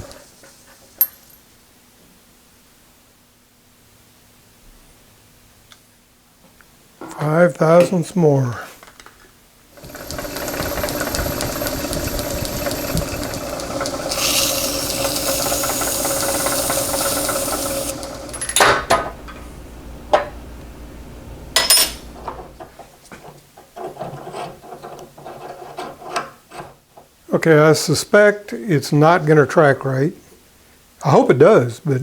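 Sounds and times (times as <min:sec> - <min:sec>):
cutting tool hiss: 0:09.8 - 0:19.4
sharp clicks and knocks: 0:09.8 - 0:19.5
metal lathe running: 0:09.8 - 0:22.6.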